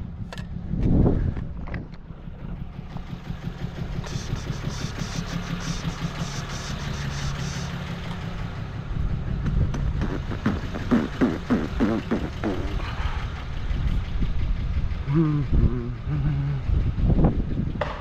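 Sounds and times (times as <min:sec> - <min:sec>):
engine running with rough hum: 0:00.0 - 0:18.0.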